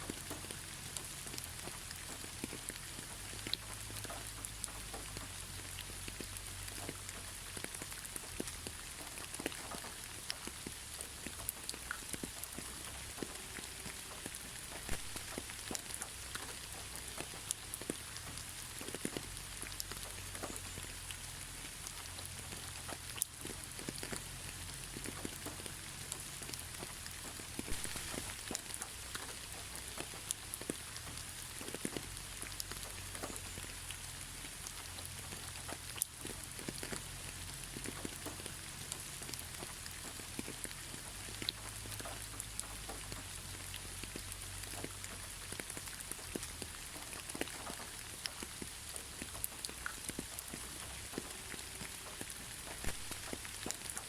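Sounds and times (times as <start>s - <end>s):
raindrops pattering on surfaces: 0.0s - 54.0s
steady rain hissing: 0.0s - 54.0s.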